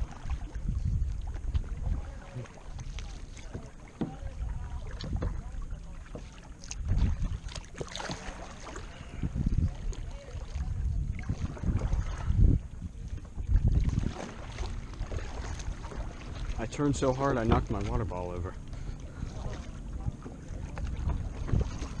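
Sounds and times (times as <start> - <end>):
wind on microphone: 0.0 - 5.9, 6.6 - 22.0
paddle splashing in water: 0.0 - 22.0
water lapping: 0.0 - 22.0.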